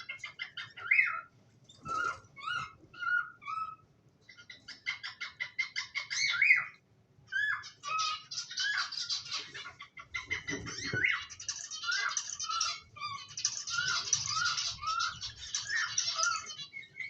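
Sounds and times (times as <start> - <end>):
cockatiels chirping and whistling: 0.0 - 17.0.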